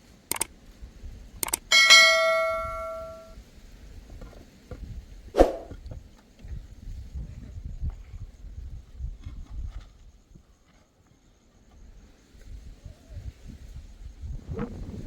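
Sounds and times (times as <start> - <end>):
light clicks: 1.4 - 1.7
metal object clanging: 1.4 - 3.3.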